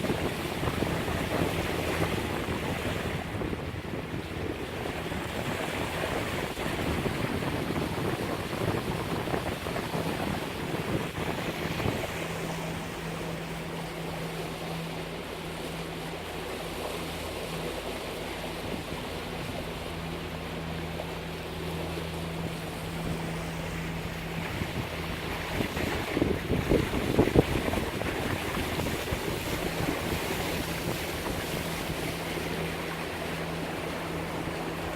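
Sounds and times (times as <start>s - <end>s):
wind buffeting microphone: 0.0s - 15.2s, 22.2s - 34.9s
low engine drone: 0.0s - 34.9s
water slapping along hull: 0.0s - 34.9s.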